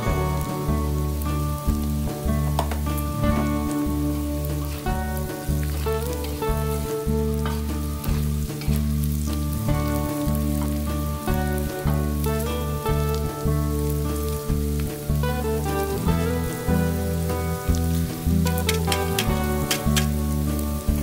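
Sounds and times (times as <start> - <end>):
background music low chords: 0.0 - 21.0
food sizzling in oil: 0.0 - 21.0
metal spatula scraping pan: 18.5 - 20.2.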